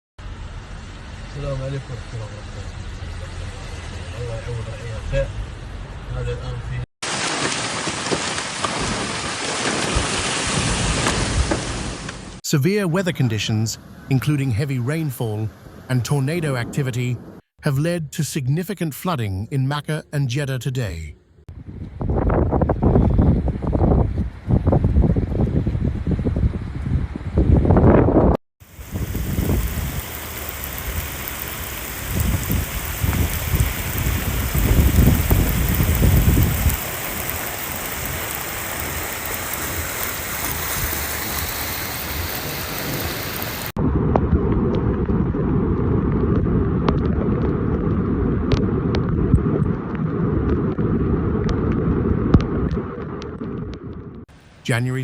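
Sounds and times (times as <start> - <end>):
heavy rain pouring: 7.0 - 12.4, 28.6 - 43.8
wind buffeting microphone: 21.5 - 54.2.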